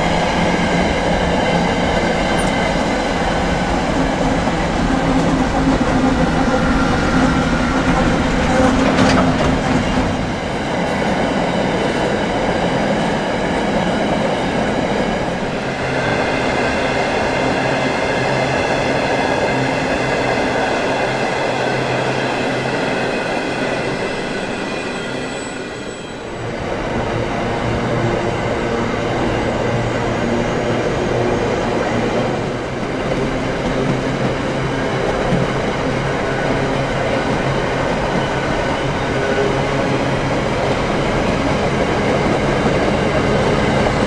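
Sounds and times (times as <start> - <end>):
freight train wheels rumbling: 0.0 - 44.0
wheel squeal: 24.0 - 26.3.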